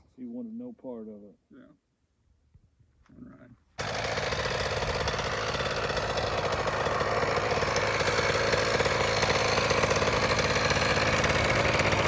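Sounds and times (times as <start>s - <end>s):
dirt bike engine running: 3.8s - 12.0s.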